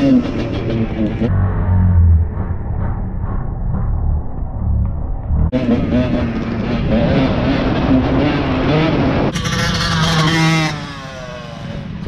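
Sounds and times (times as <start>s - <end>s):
dirt bike engine revving: 5.5s - 11.9s.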